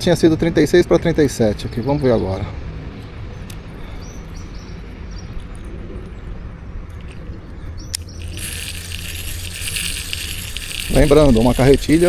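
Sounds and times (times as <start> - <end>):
fishing reel whirring: 7.9 - 12.0.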